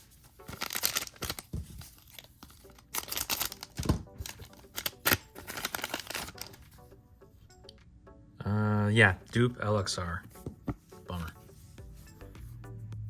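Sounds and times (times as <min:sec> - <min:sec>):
faint background music: 0:00.0 - 0:13.0
wrapper crinkling and tearing: 0:00.4 - 0:06.7.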